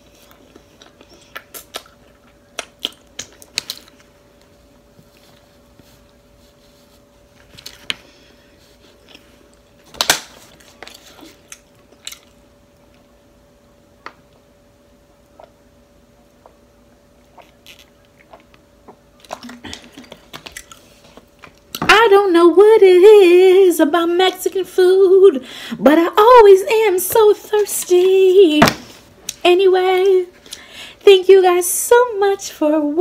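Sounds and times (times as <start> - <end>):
chewing with wet mouth clicks: 0.2 - 4.1, 17.2 - 21.8.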